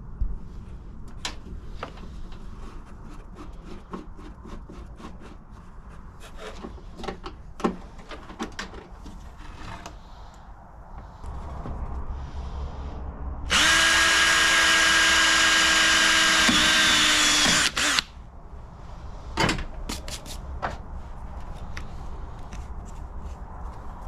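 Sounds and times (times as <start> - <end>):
power drill running: 13.5 - 18.1.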